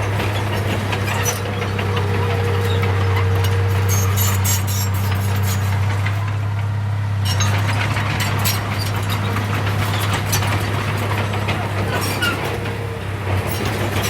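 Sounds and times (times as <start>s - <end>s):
heavy diesel engine running: 0.0s - 14.0s
clattering and rattling: 7.3s - 14.0s.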